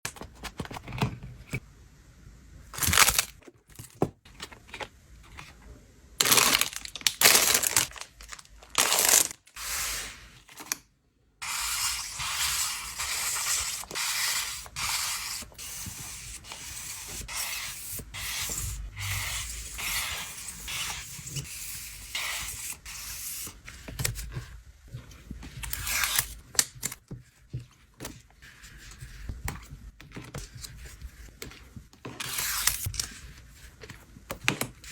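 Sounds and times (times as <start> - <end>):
paper rustling and crinkling: 2.8 - 5.6, 6.2 - 10.8.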